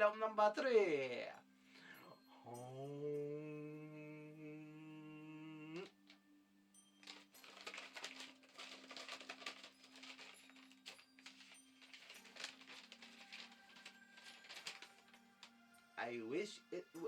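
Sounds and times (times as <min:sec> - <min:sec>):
paper crinkling and rustling: 0:07.0 - 0:15.7.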